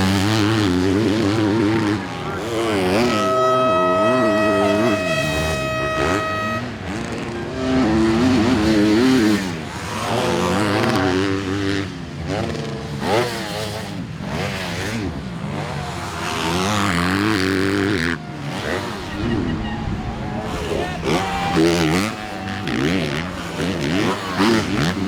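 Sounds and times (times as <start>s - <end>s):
motocross bike engines revving: 0.0s - 25.0s.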